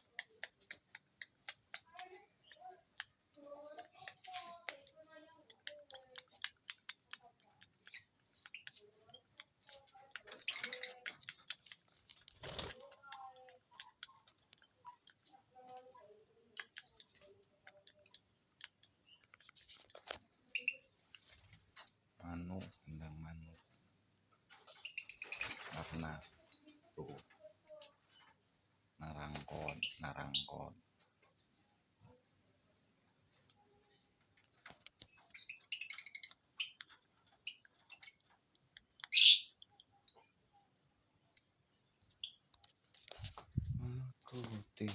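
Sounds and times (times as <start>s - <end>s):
bird chirping: 0.0s - 23.2s, 24.4s - 44.9s
bird giving high chirps: 39.1s - 40.3s.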